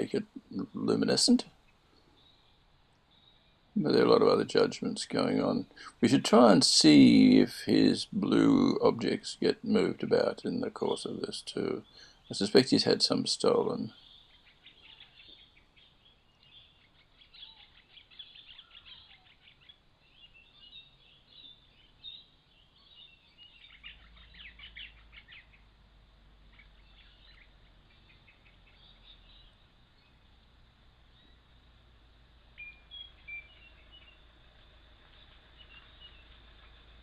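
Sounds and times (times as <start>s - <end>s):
whistled bird notes: 32.6s - 34.2s.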